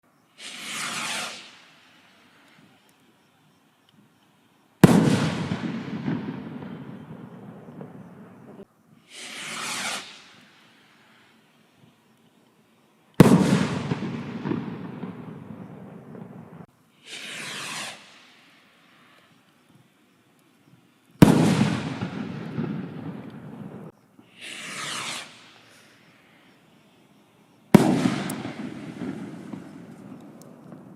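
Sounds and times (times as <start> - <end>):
rushing hiss: 0.3 - 2.7, 9.0 - 11.6, 16.9 - 19.5, 24.2 - 27.0
rocket launch whoosh: 0.4 - 1.6, 9.1 - 10.5, 17.1 - 18.2, 24.4 - 25.6
firework bursting with bang: 0.4 - 1.8, 4.8 - 10.7, 13.2 - 18.4, 21.2 - 25.9, 27.7 - 30.9.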